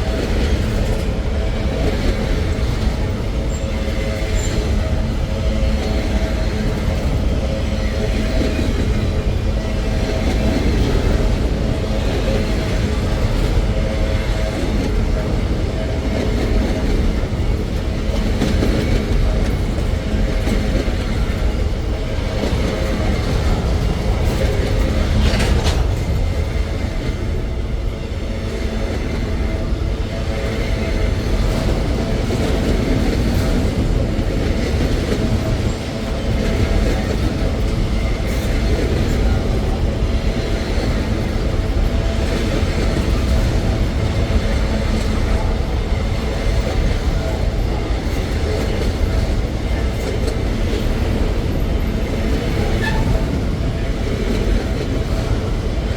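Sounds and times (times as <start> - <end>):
freight train rumbling on rails: 0.0 - 55.9.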